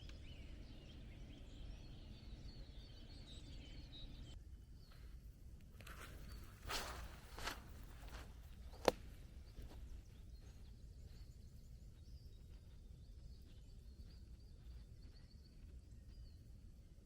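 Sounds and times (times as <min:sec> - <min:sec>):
rustle: 0:05.8 - 0:08.9.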